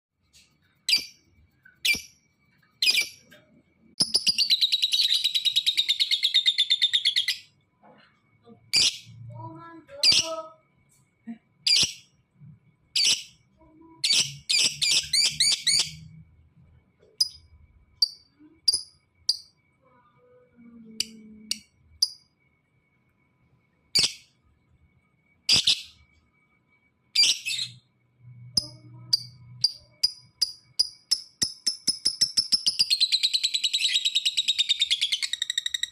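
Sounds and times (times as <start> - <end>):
lovebird shrill chirps: 1.8 - 2.2, 2.8 - 3.3, 4.0 - 7.6, 8.7 - 9.1, 11.6 - 12.1, 13.0 - 13.4, 14.0 - 16.1, 23.9 - 24.4, 25.5 - 26.1, 27.1 - 27.9, 28.6 - 35.9
lovebird rapid chattering trill: 2.8 - 3.3, 28.6 - 35.9.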